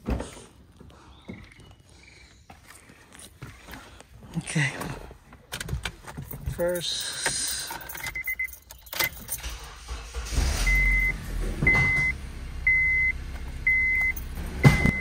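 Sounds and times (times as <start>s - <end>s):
car engine cranking and starting: 7.2s - 15.0s
car engine idling: 9.4s - 15.0s
dashboard chime beeping: 11.7s - 15.0s.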